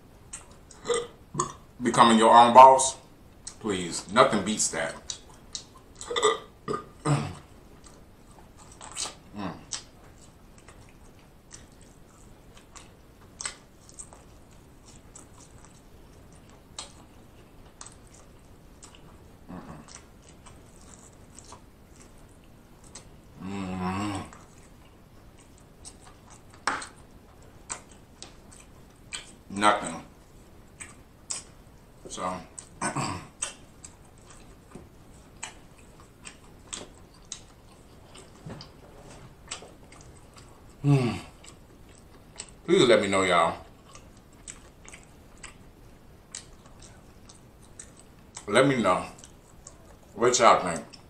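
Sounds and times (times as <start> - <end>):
wet chewing smacks: 7.8 - 23.2, 24.3 - 29.5, 30.2 - 31.8, 32.5 - 42.7, 43.7 - 48.5.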